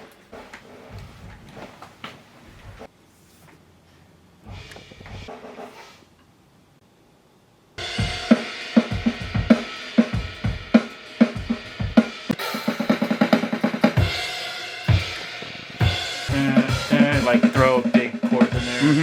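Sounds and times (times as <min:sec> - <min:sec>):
drum kit playing a beat: 0:04.5 - 0:06.0, 0:07.8 - 0:19.0.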